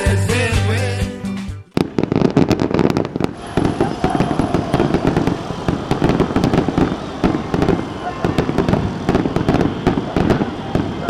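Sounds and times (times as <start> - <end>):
music: 0.0 - 1.7
fireworks cracking and banging: 1.8 - 11.0.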